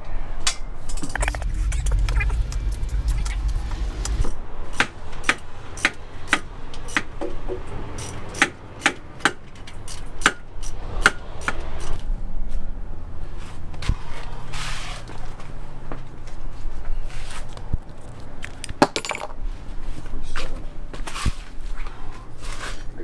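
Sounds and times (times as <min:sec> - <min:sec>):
low rumble: 0:01.0 - 0:04.8.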